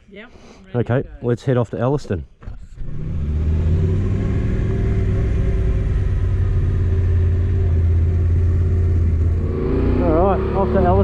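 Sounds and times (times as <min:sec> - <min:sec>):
motorcycle engine running: 0:02.9 - 0:11.0.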